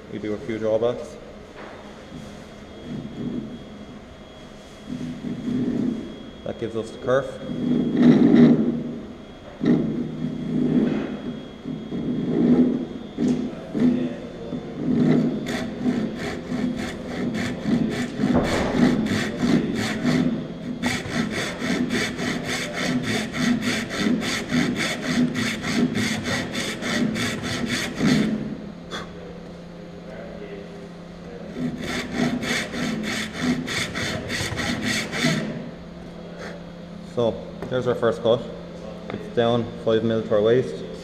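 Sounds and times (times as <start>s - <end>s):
hand saw cutting wood: 15.0s - 29.1s, 31.5s - 35.6s.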